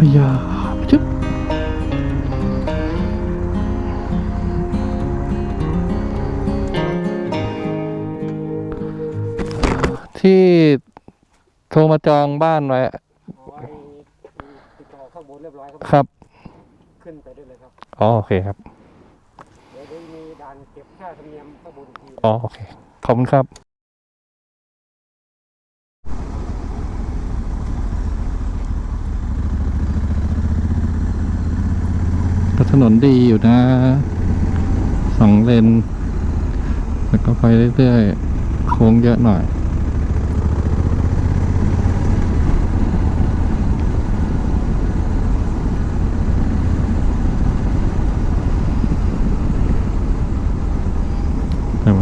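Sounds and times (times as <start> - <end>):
motorcycle engine running: 0.0 - 7.5, 26.1 - 52.0.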